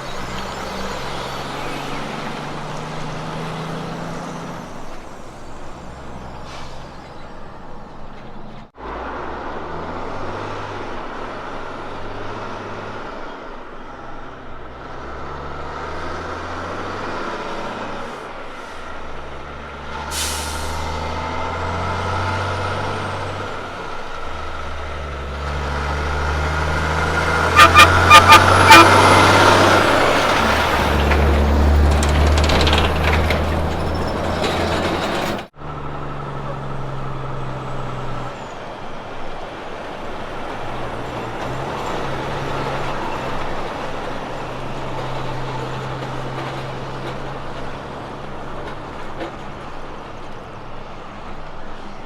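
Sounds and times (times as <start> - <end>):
truck diesel engines under load: 0.0 - 52.0
air brake hiss: 6.4 - 7.2, 20.0 - 21.0.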